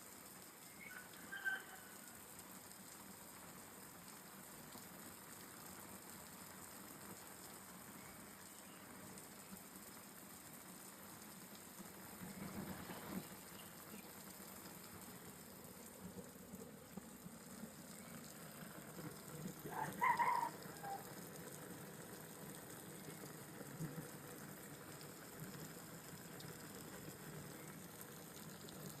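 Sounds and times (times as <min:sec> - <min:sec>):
hose spraying water: 0:11.4 - 0:29.0.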